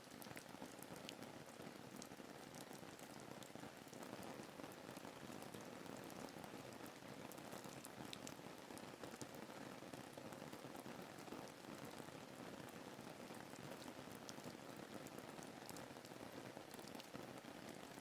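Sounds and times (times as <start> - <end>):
rain patter: 0.0 - 18.0
light drip ticks: 0.1 - 1.2, 5.4 - 9.4, 15.4 - 17.2.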